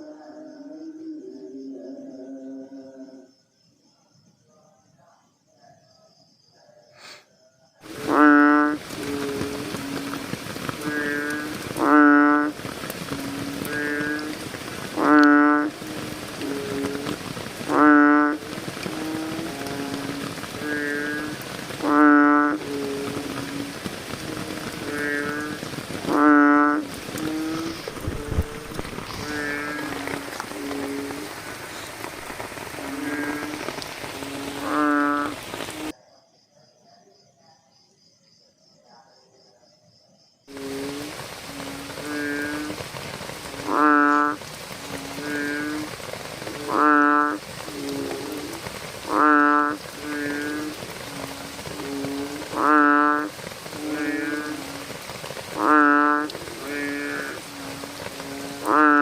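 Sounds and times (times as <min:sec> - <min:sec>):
faint insect trill: 0:00.0 - 0:17.3
steady hiss: 0:07.0 - 0:35.9, 0:40.5 - 0:59.0
bullfrogs calling in chorus: 0:07.8 - 0:36.0, 0:40.5 - 0:59.0
frog croaking: 0:07.8 - 0:36.3, 0:40.5 - 0:59.0.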